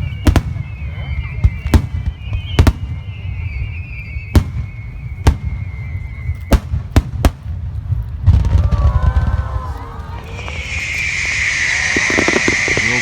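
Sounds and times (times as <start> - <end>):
fireworks bursting: 0.0 - 13.0
continuous low rumble: 5.0 - 13.0
high wavering tone: 10.2 - 13.0.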